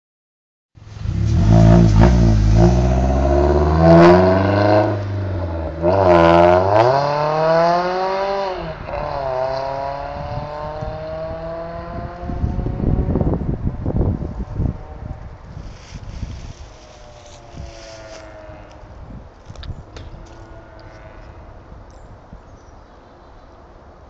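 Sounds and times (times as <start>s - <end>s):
car engine revving: 0.8s - 13.2s.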